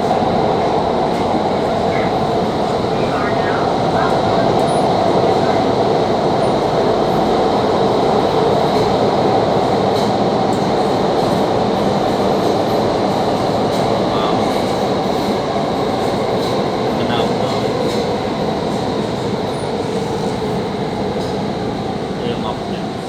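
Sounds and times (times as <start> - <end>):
train rumble: 0.0 - 23.0.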